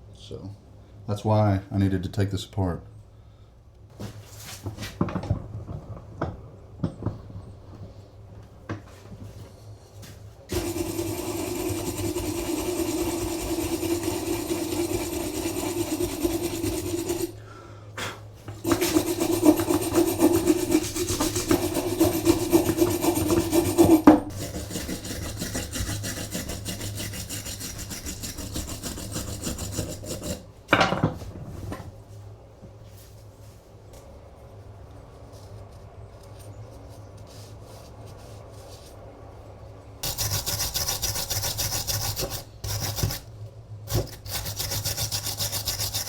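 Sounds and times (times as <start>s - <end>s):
wire brush scrubbing metal: 10.5s - 17.4s, 18.6s - 30.5s, 40.0s - 43.3s, 43.9s - 46.0s.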